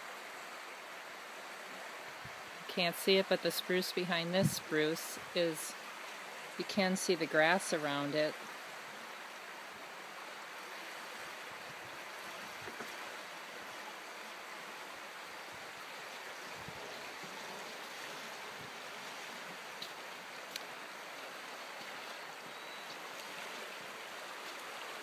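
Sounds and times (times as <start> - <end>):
creek rushing: 0.0 - 25.0
faint ticks: 19.8 - 20.7.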